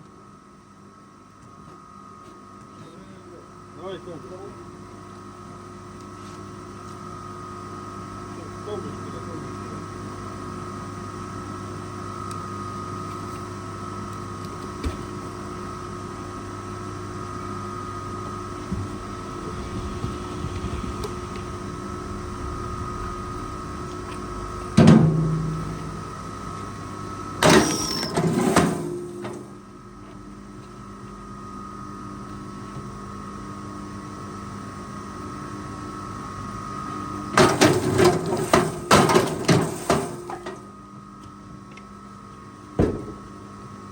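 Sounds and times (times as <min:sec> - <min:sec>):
machine engine running: 0:18.3 - 0:29.7
loud knock: 0:42.8 - 0:43.2.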